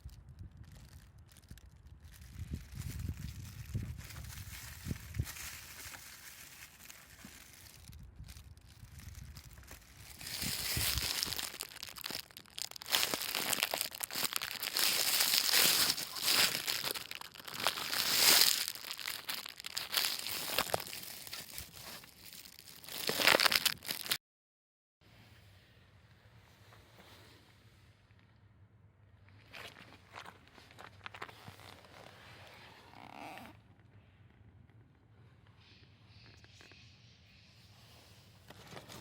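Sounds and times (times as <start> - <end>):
crinkling and rustling handling noise: 0.0 - 24.2, 29.3 - 33.5, 38.3 - 39.0.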